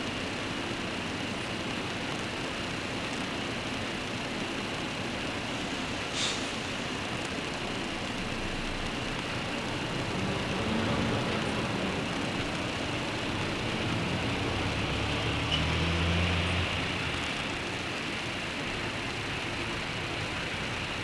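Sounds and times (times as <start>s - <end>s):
steady rain hiss: 0.0s - 21.0s
vehicle engine passing: 8.4s - 17.8s.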